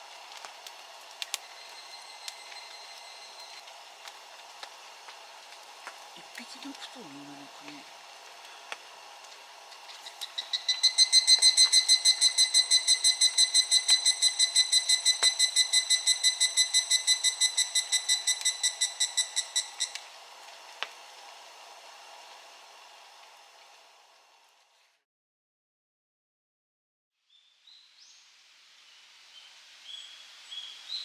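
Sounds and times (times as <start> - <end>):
faint rain patter: 0.0 - 10.3
cicada ringing call: 1.3 - 3.6, 10.0 - 20.1.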